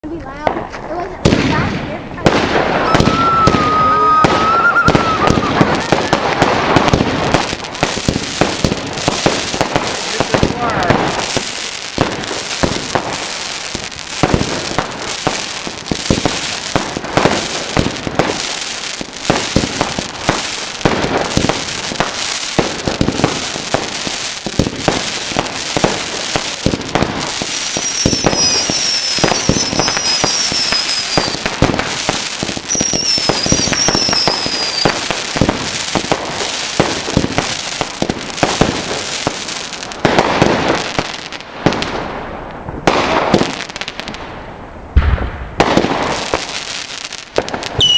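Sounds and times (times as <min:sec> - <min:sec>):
fireworks bangs and crackling: 0:00.0 - 0:47.9
high falling whistles: 0:02.9 - 0:06.1.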